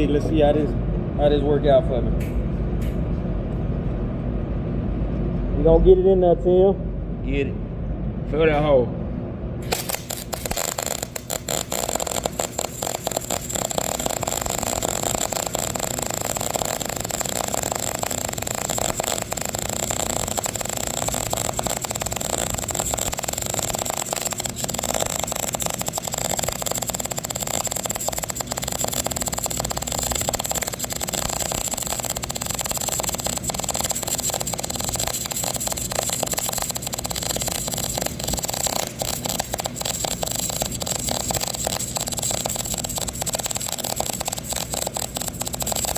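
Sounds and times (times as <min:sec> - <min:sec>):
high-pitched whine: 0:00.0 - 0:45.9
welding arc crackling: 0:09.6 - 0:45.9.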